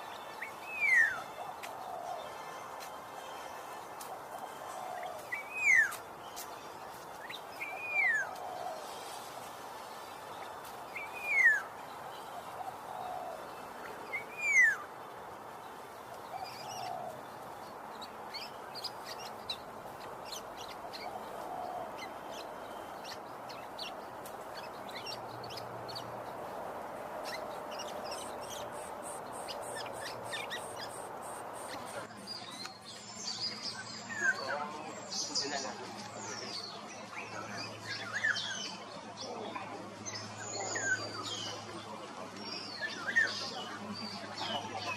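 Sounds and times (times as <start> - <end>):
outdoor hiss: 8.8 - 12.5.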